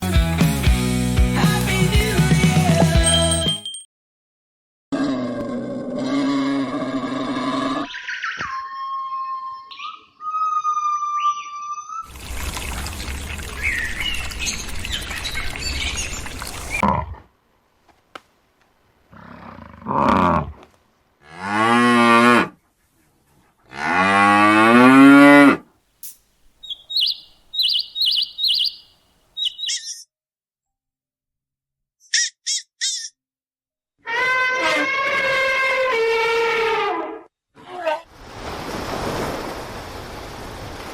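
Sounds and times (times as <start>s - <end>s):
low wavering animal calls: 6.0s - 12.0s, 26.6s - 30.0s
quick high chirps: 26.0s - 30.0s
animal steady pitched tone: 26.6s - 30.0s.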